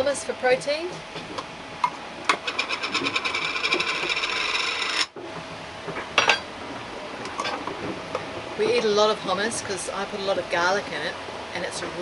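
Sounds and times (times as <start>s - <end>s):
kitchen utensil scraping: 2.3s - 5.1s.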